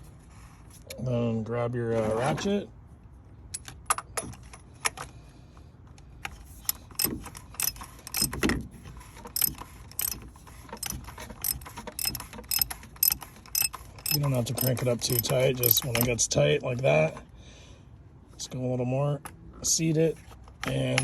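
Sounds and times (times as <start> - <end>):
hand ratchet clicking: 6.6 - 8.4, 9.3 - 16.2.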